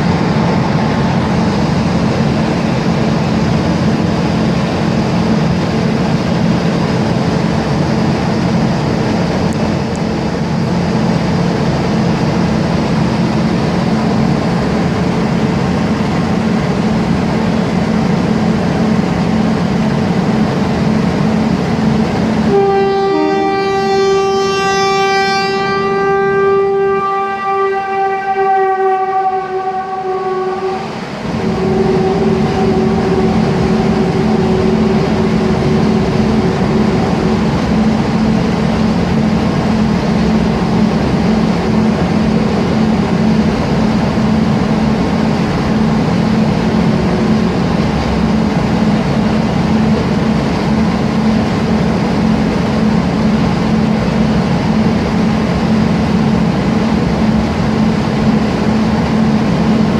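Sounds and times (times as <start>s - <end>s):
train rumbling past: 0.0s - 59.9s
train horn: 22.4s - 38.4s.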